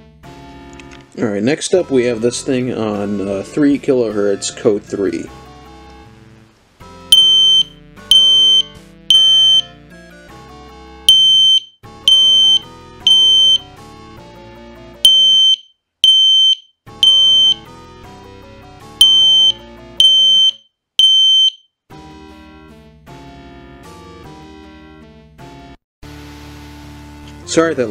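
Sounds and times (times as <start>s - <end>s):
fire alarm horn beeping: 7.2s - 9.7s, 11.1s - 13.6s, 15.1s - 17.7s, 19.0s - 21.6s.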